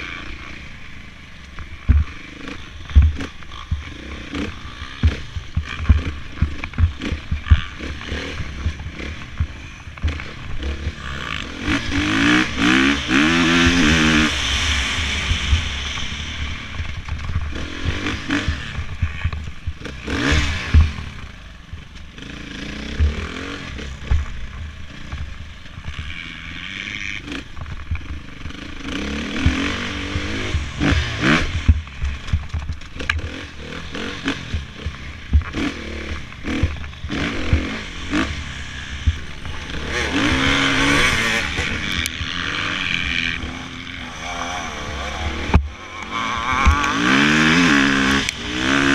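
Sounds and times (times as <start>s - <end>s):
dirt bike engines revving: 0.0s - 48.9s.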